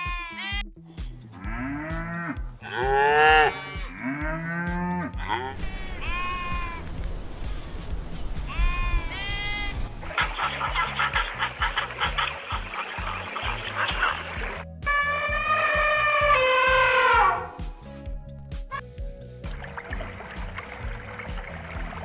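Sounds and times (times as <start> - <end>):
goat bleating: 0.0 - 0.7, 2.6 - 4.3, 5.0 - 6.9, 8.5 - 9.9
background music: 0.0 - 22.0
cow mooing: 1.4 - 6.8.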